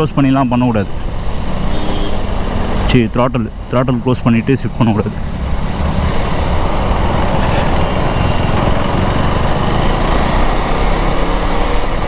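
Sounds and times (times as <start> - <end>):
road and wind noise: 0.0 - 12.0
motorcycle engine running: 5.0 - 12.0.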